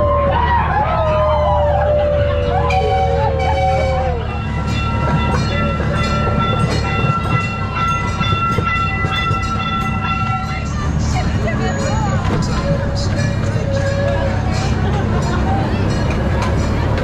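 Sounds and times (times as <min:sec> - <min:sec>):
siren-like wail: 0:00.0 - 0:04.6
ride train rumbling: 0:00.0 - 0:17.0.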